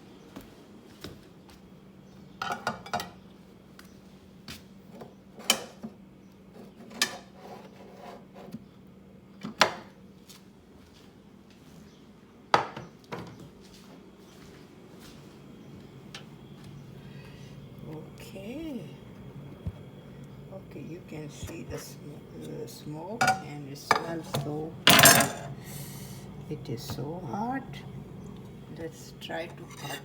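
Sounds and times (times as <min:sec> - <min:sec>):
low steady hum: 0:15.2 - 0:30.0
dishes and utensils clinking: 0:23.2 - 0:30.0.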